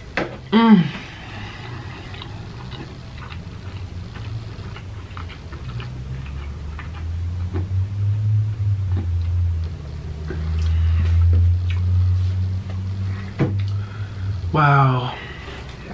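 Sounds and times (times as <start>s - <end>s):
low hum: 0.0s - 15.9s
chewing mouth sounds: 1.3s - 7.1s, 11.6s - 11.9s.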